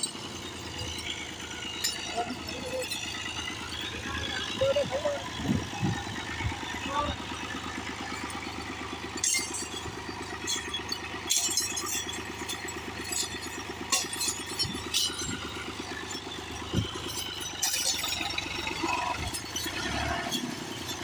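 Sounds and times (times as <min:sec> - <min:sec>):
tractor engine under load: 0:00.0 - 0:21.0
sharp knocks and clatters: 0:09.1 - 0:18.3.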